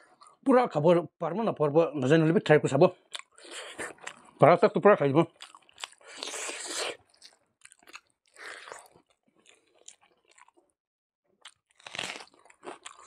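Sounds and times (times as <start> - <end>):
chewing with crunchy bites: 3.0 - 4.4, 5.3 - 10.7, 11.4 - 13.0.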